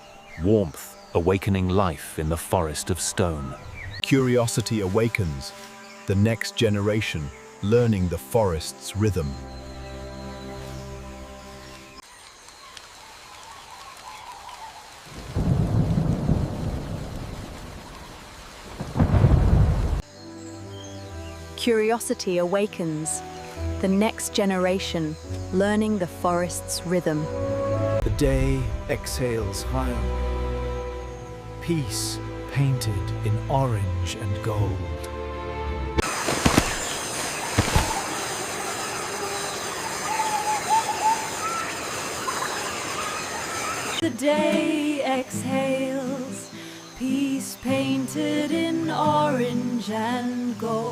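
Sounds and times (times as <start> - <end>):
rain hiss: 9.6 - 24.6, 27.7 - 34.8, 36.0 - 50.9
thunder rumble: 15.1 - 20.0
chirping calls: 36.1 - 44.2.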